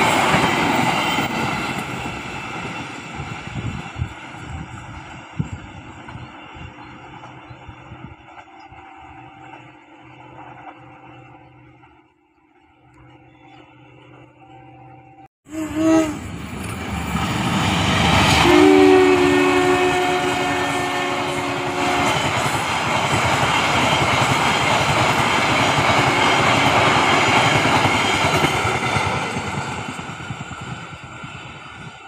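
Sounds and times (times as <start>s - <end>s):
train wheels rumbling and clattering: 0.0s - 12.1s, 16.3s - 32.0s
locomotive horn: 13.3s - 16.5s, 18.3s - 22.4s.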